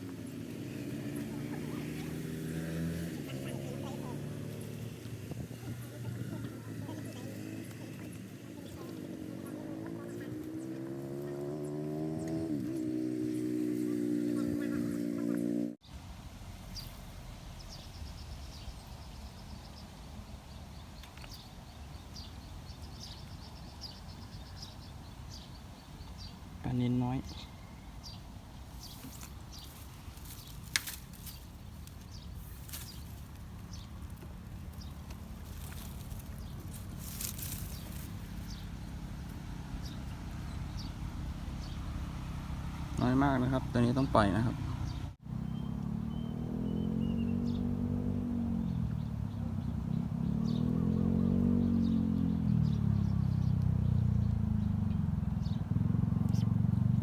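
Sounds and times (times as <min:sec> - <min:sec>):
engine passing by: 0:00.0 - 0:20.4, 0:22.1 - 0:57.0.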